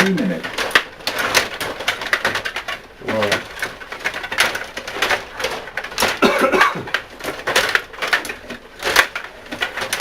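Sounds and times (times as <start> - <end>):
table hockey clacks and knocks: 0.0 - 10.0
cough or grunt: 6.2 - 6.9.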